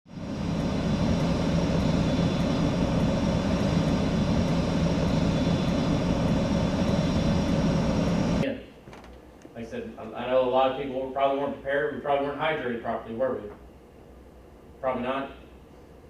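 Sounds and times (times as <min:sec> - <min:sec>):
aircraft engine running: 0:00.0 - 0:08.4.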